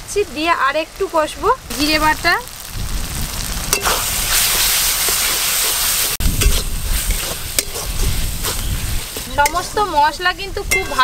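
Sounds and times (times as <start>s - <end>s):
masala sizzling in pan: 0.0s - 11.0s
spatula stirring and scraping: 3.7s - 11.0s.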